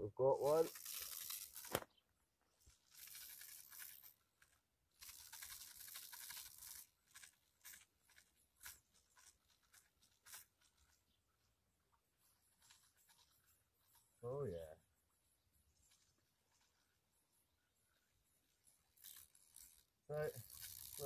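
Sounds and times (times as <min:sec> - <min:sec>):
faint rustling and brushing: 0:00.3 - 0:21.0.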